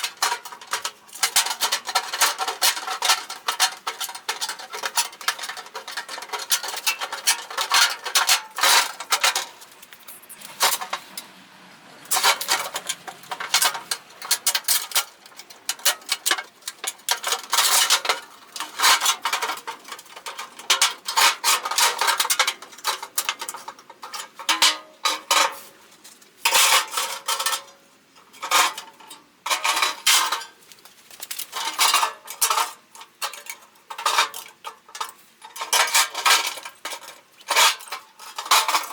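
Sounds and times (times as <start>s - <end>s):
tin can clanking: 0.0s - 9.8s, 12.1s - 25.6s, 31.5s - 38.9s.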